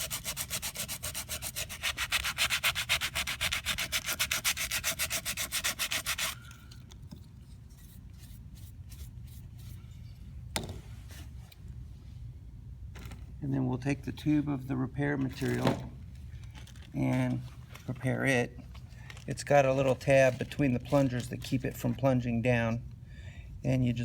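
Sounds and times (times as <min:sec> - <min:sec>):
sandpaper scrubbing a surface: 0:00.0 - 0:06.5.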